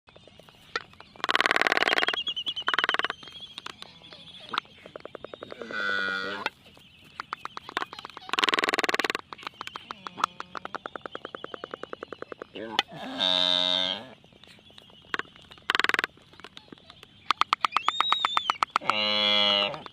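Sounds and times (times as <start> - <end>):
farm animals calling: 0.4 - 19.9
drawn-out pitched animal call: 0.7 - 6.6, 7.4 - 14.2, 17.3 - 19.9.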